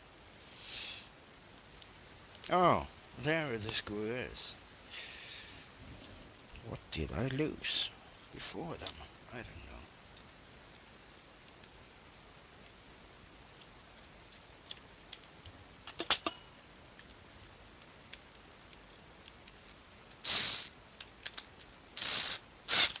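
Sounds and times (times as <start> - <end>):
small plastic parts ticking: 16.9 - 23.0
sharp clicks of parts: 17.8 - 23.0
short scratchy noises: 20.2 - 20.8.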